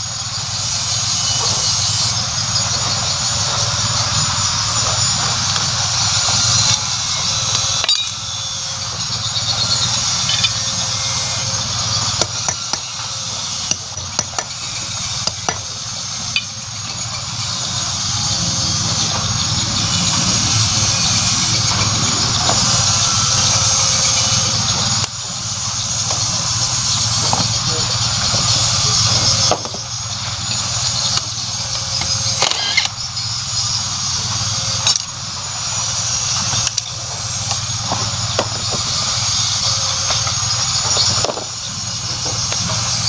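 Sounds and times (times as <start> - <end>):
steady background noise: 0.0 - 43.0
metal tools knocking and clinking: 5.5 - 17.4, 29.1 - 33.0, 34.7 - 35.1, 40.0 - 43.0.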